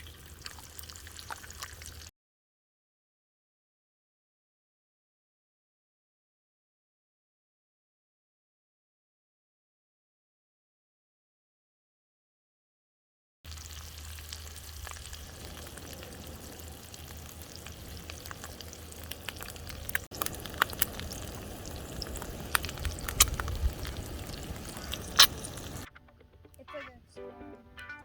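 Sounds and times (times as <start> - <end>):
fire crackling and popping: 0.0 - 2.1, 13.5 - 25.9
food sizzling: 0.0 - 2.1, 13.5 - 25.9.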